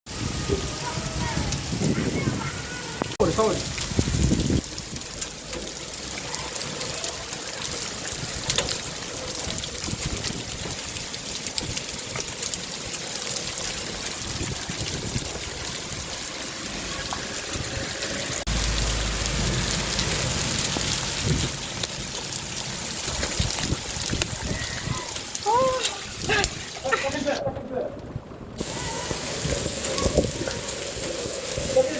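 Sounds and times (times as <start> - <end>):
rain falling: 0.1 - 31.9
low rumble: 18.4 - 21.6.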